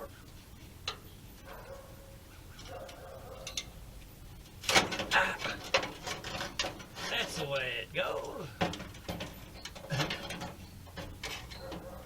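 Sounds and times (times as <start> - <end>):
metal clatter and scrape: 4.4 - 12.0
sheet metal knocking and scraping: 4.6 - 7.7, 8.5 - 12.0.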